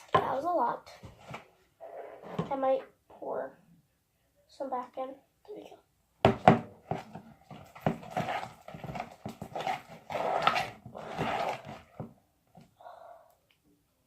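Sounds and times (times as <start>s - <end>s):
slime squelching: 6.8s - 12.1s.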